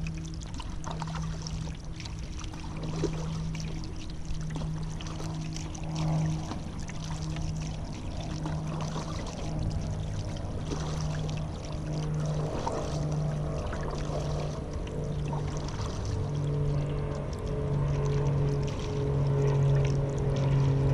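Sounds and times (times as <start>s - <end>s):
kayak paddle strokes splashing: 0.0s - 20.9s
low pulsing hum: 0.0s - 20.9s.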